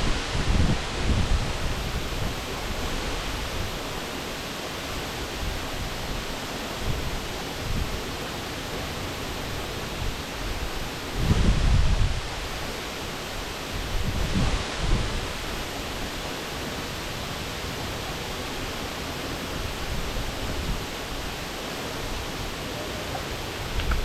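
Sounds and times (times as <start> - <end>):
wind buffeting microphone: 0.0 - 3.8, 10.0 - 12.4, 13.8 - 15.4, 21.9 - 24.0
waterfall rushing: 0.0 - 24.0.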